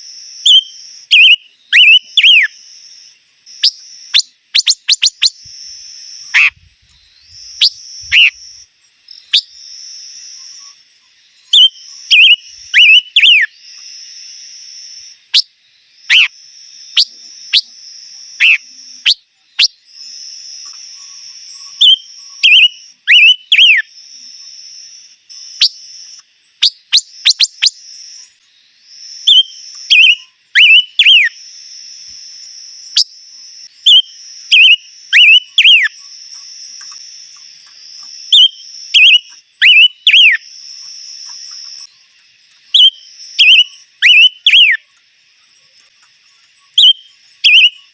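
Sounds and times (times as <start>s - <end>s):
insect-like buzz: 0.0s - 47.9s
songbird chirping: 0.0s - 47.9s.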